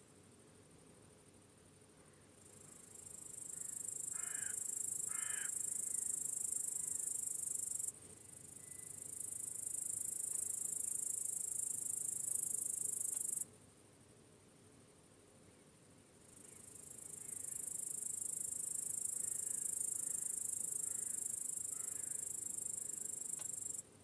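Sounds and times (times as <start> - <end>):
faint crickets chirping: 0.0 - 24.0
bird cawing: 4.1 - 5.6, 20.9 - 22.2.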